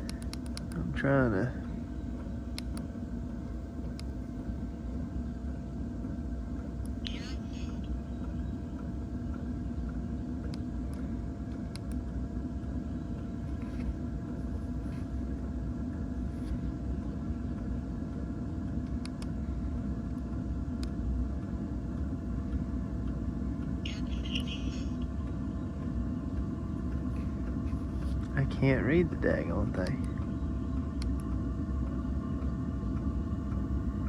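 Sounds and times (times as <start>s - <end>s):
heater blower humming: 0.0s - 34.0s.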